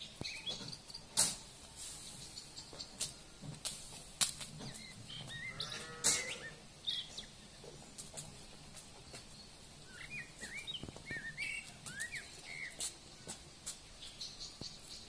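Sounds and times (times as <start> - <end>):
bleating call: 5.4 - 6.6
songbird whistled notes: 9.4 - 12.9.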